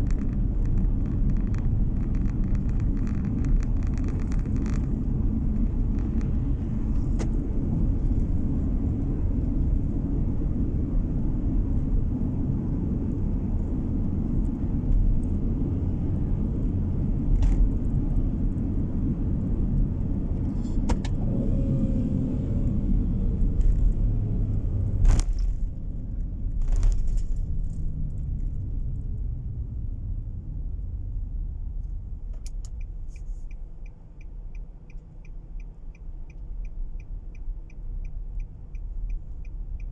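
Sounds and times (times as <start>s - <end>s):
car road and engine rumble: 0.0s - 39.9s
regular ticking: 32.7s - 39.9s.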